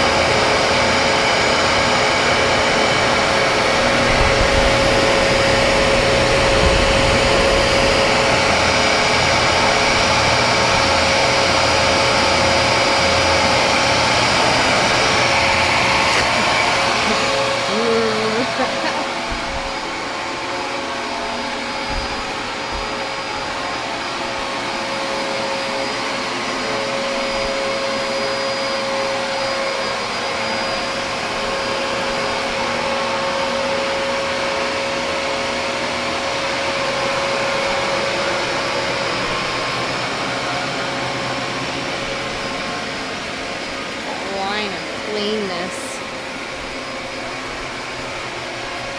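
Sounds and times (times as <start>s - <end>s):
vacuum cleaner running: 0.0s - 48.9s
low bumps: 3.7s - 9.8s.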